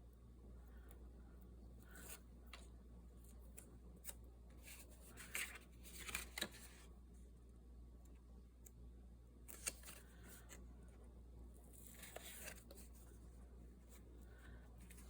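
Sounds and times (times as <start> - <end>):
paper rustling: 3.3 - 6.9, 9.5 - 10.6, 11.7 - 13.2.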